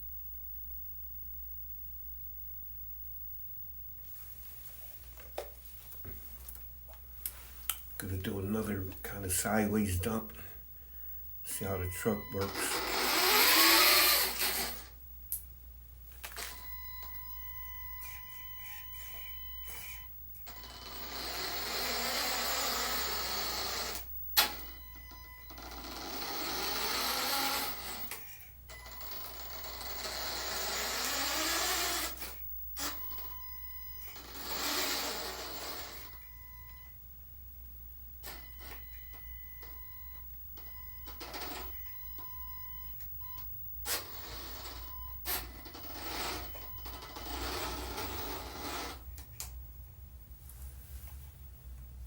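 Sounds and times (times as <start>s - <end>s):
electric motors and pump whirring: 11.5s - 15.4s, 16.1s - 37.0s, 38.2s - 49.6s.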